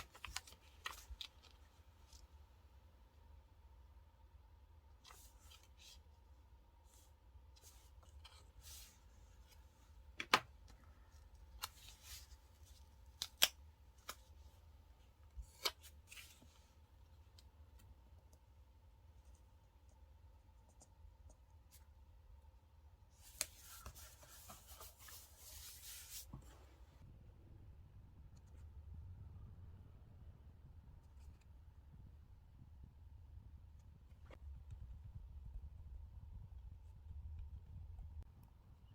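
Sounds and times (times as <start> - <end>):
paper rustling: 0.0 - 2.3, 23.2 - 26.6.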